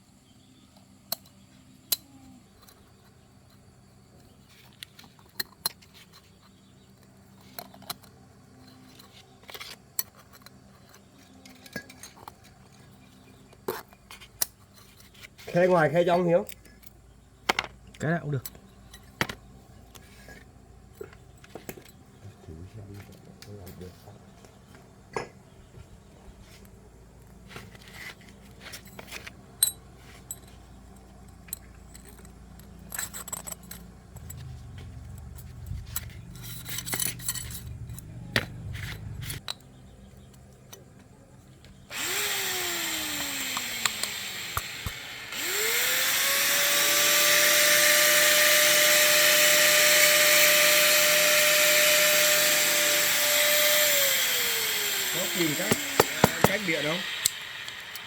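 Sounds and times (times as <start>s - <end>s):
metal tools clicking and tapping: 6.9s - 12.8s, 28.8s - 34.5s
electric power tool spinning: 33.2s - 39.4s, 41.9s - 58.0s.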